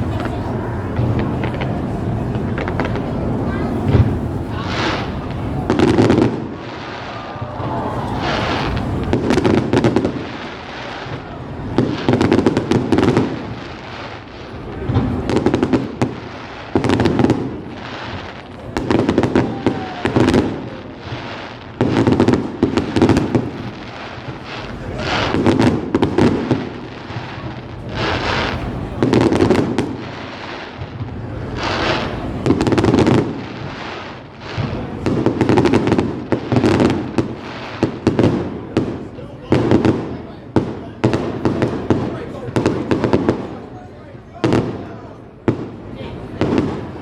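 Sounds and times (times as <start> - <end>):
fireworks bangs and crackling: 0.0 - 47.0.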